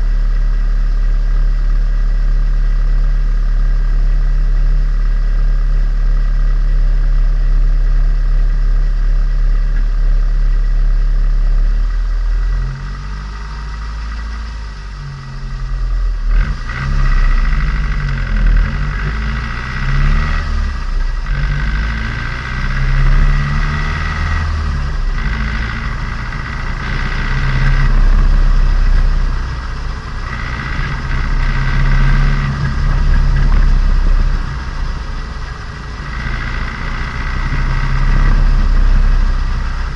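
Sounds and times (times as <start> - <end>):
car engine revving: 9.2 - 39.9.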